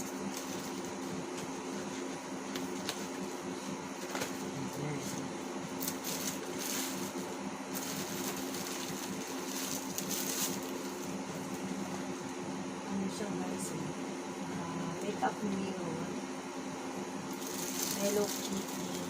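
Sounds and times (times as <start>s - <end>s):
steady low hum: 0.0s - 19.0s
packaging crinkling and rustling: 5.8s - 11.6s, 17.3s - 19.0s.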